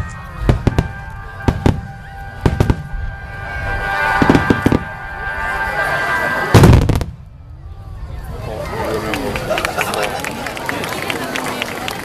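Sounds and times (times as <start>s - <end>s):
music playing: 0.0s - 7.0s.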